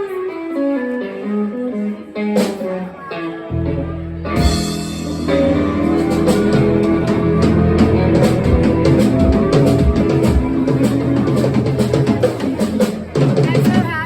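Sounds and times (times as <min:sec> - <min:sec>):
electric guitar: 0:00.0 - 0:14.0
bass guitar: 0:01.7 - 0:13.8
drum kit beats: 0:04.3 - 0:14.0.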